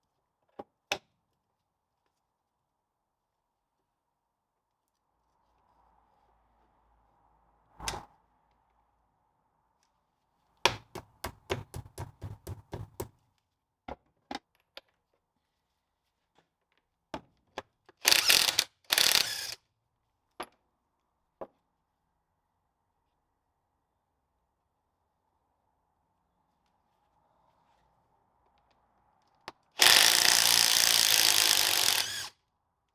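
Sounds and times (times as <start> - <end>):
socket ratchet clicking: 18.1 - 19.5
loud rasping bursts: 18.1 - 19.6, 29.8 - 32.3.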